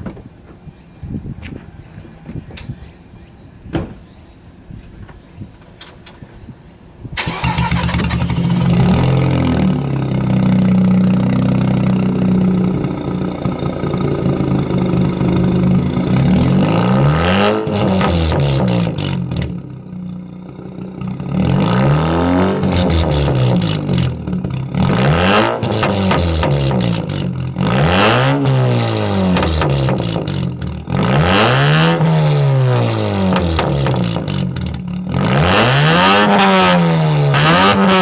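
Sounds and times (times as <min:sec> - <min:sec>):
rotary engine idling and revving: 0:07.2 - 0:38.0.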